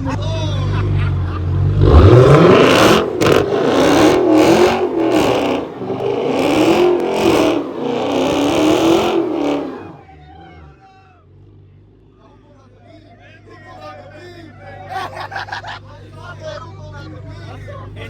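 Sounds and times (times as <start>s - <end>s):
engine revving hard: 1.2s - 10.1s.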